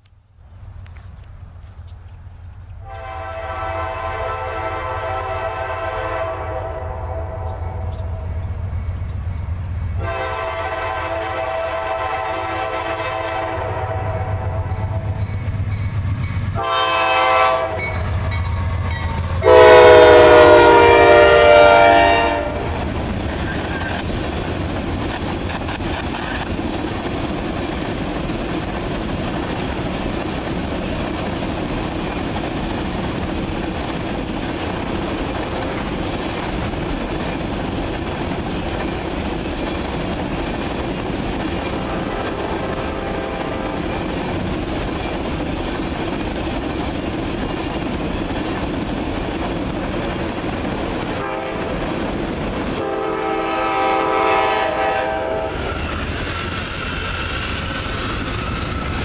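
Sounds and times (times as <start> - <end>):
locomotive air horn: 2.8 - 8.2, 10.0 - 15.2, 16.6 - 18.1, 19.4 - 22.8, 41.8 - 43.9, 51.2 - 51.7, 52.8 - 55.7
train wheels clacking on rail joints: 22.6 - 59.0.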